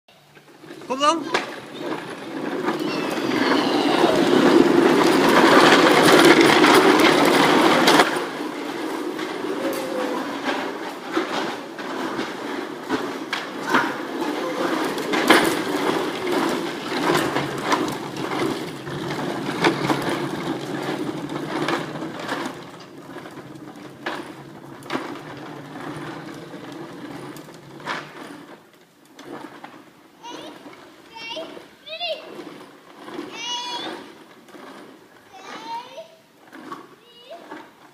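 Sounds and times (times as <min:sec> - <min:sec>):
plastic toy wheels rumbling: 0:00.2 - 0:37.9
clicks and knocks: 0:01.3 - 0:29.8.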